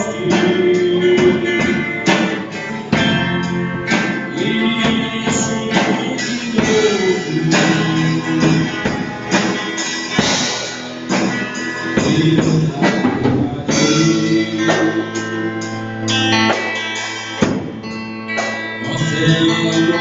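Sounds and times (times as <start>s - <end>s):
drum kit: 0.0s - 20.0s
guitar chords: 0.0s - 20.0s.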